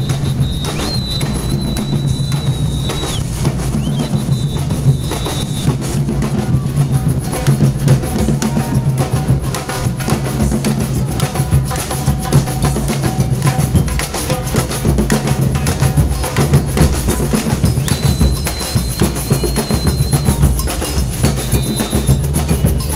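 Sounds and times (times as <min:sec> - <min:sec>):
high whistle tone: 0:00.0 - 0:07.0, 0:17.5 - 0:22.9
deep bass drum beats: 0:00.0 - 0:22.9
drums beating rhythm: 0:00.0 - 0:22.9.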